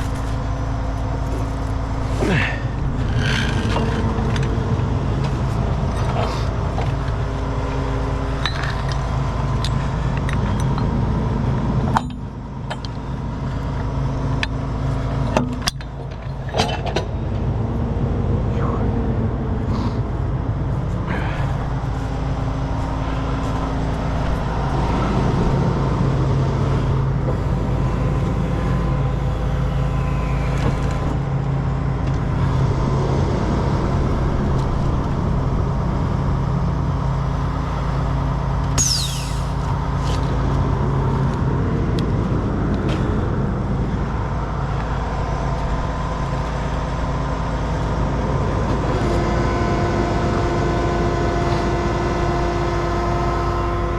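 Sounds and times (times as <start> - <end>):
truck diesel engine running: 0.0 - 53.9
high-pitched squeal falling in pitch: 27.3 - 31.4, 37.4 - 40.2.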